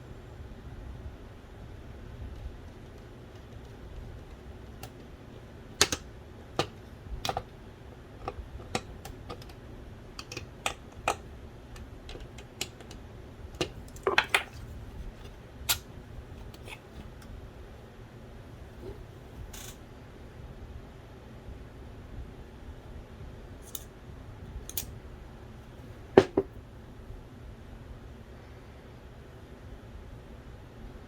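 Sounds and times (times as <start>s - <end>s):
small parts clicking and tapping: 5.8s - 7.6s, 8.2s - 9.6s, 10.2s - 13.0s, 13.6s - 15.8s, 19.5s - 19.8s, 23.6s - 23.9s, 24.7s - 24.9s.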